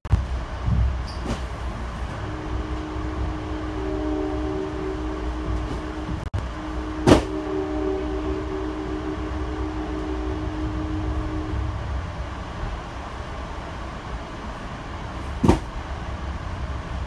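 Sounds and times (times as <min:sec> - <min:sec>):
train car low rumble: 0:00.0 - 0:17.0
tonal hum: 0:00.1 - 0:13.4.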